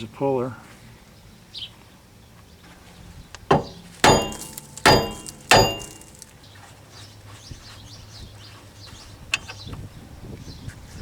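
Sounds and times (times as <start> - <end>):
hammer striking metal: 3.5 - 6.3.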